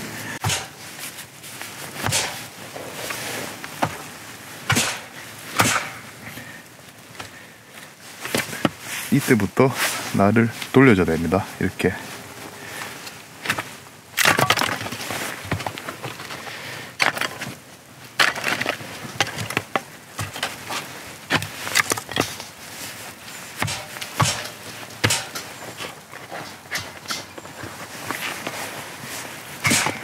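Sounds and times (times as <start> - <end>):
wood cracking and splintering: 13.4 - 22.6.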